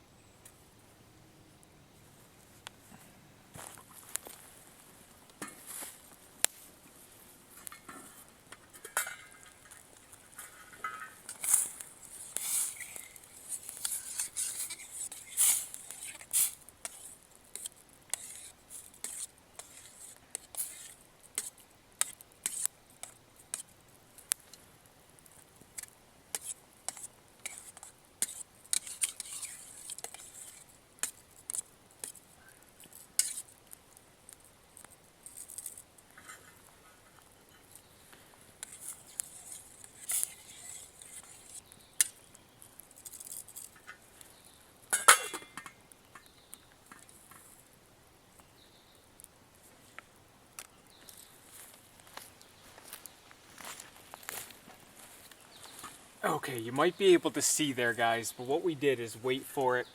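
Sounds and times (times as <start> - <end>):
metal pot and utensils clinking: 7.7 - 9.8, 10.4 - 11.6, 44.9 - 46.3.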